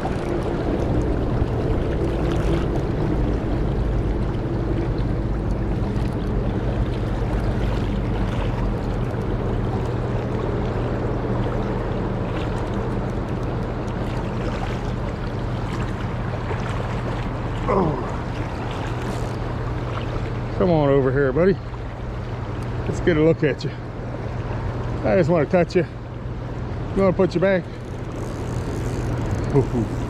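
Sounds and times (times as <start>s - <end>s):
river current rushing: 0.0s - 23.8s, 26.4s - 30.0s.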